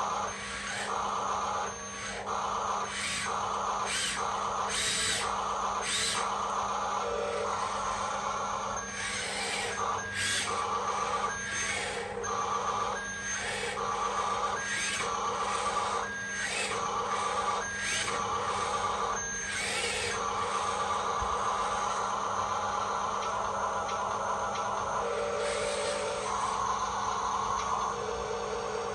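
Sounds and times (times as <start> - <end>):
toy truck motor and gears whirring: 0.0 - 28.9.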